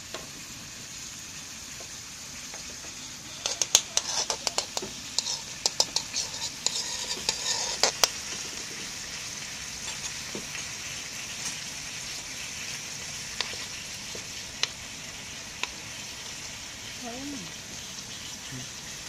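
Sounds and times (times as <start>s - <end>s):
food sizzling in a wok: 0.0s - 19.0s
metal utensil clicking on pan: 3.4s - 8.2s, 13.4s - 13.6s.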